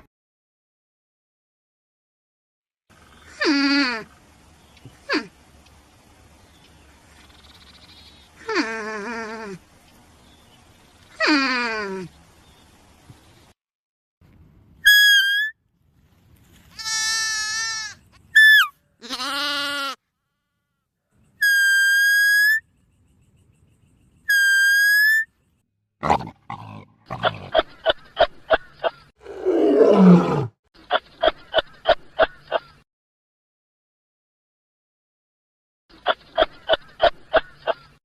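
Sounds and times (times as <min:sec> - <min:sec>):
bleat-like call: 0:16.8 - 0:20.8.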